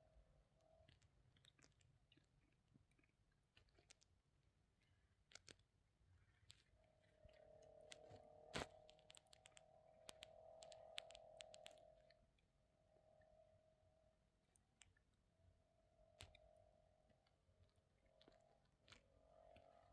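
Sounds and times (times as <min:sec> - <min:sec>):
faint steady hum: 0:00.0 - 0:19.9
faint scattered clicks: 0:05.3 - 0:13.4, 0:16.0 - 0:19.9.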